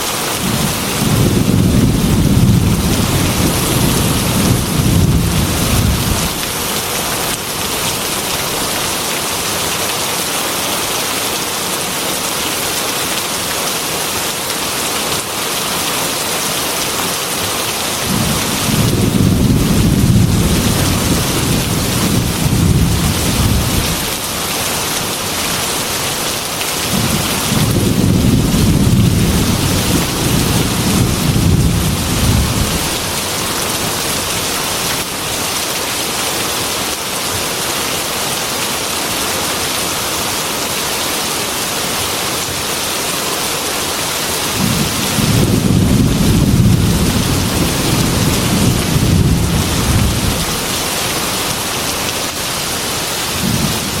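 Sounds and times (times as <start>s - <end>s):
heavy rain on glass window: 0.0s - 54.0s
thunder rumbling: 0.4s - 6.7s, 18.0s - 24.2s, 26.9s - 33.2s, 44.5s - 51.0s, 53.2s - 54.0s.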